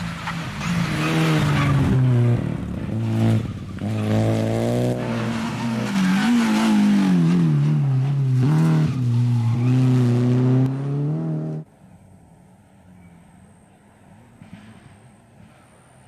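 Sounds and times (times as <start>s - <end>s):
rally car engine revving: 0.0s - 11.7s
faint background noise: 7.3s - 16.0s.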